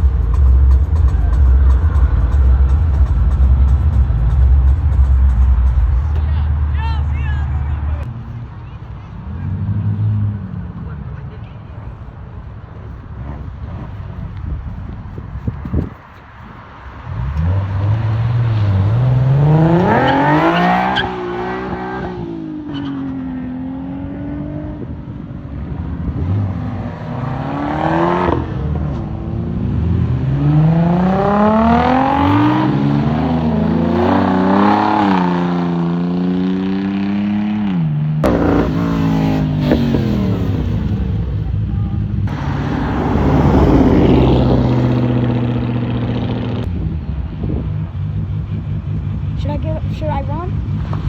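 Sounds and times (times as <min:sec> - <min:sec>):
car engine revving: 0:00.0 - 0:08.3, 0:17.0 - 0:51.0.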